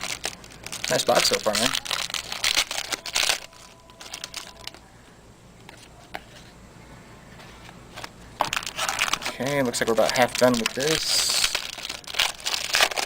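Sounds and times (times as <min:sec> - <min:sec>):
wrapper crinkling: 0:00.0 - 0:04.8, 0:07.9 - 0:13.0.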